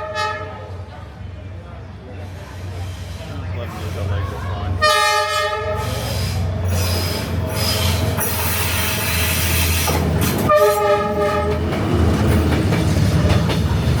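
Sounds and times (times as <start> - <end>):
train horn: 0.0 - 0.7, 4.8 - 6.0, 10.5 - 11.6
diesel train engine rumbling: 0.0 - 14.0
train wheel and rail noise: 0.0 - 14.0.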